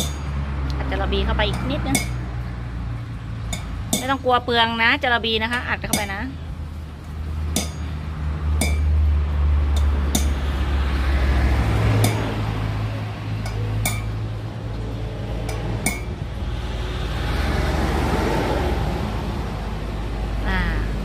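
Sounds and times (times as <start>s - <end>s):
tools clinking on metal hub: 0.0s - 0.4s, 1.4s - 2.2s, 7.6s - 8.0s, 8.6s - 9.0s, 13.3s - 14.2s, 15.4s - 16.2s
low hum: 5.9s - 21.0s.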